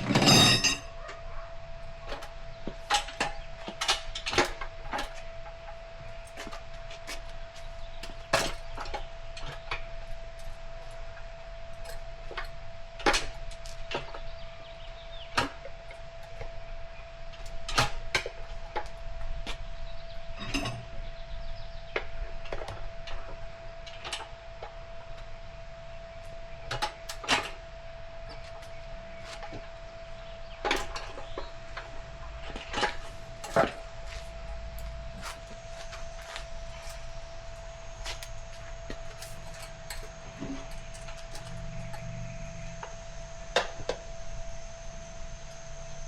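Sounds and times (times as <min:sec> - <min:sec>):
tire irons knocking on metal rim: 0:00.0 - 0:00.9
faint steady hum: 0:00.0 - 0:46.0.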